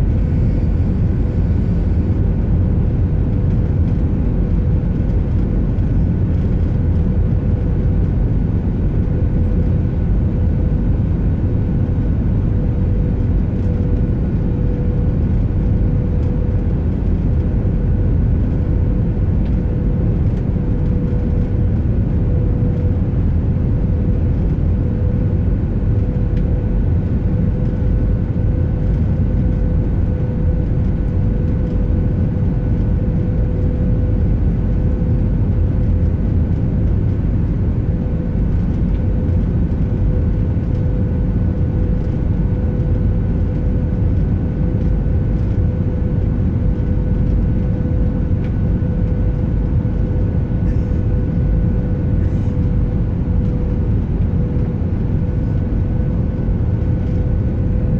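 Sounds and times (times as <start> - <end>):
faint constant hum: 0.0 - 57.9
jet cabin engine rush: 0.0 - 57.9.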